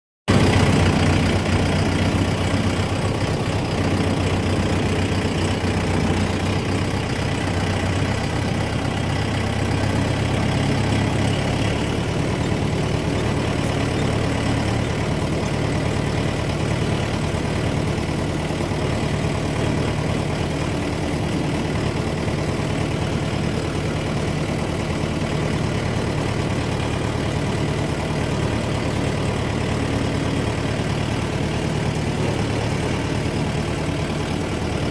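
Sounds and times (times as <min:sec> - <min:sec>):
tractor engine running: 0:00.3 - 0:34.9.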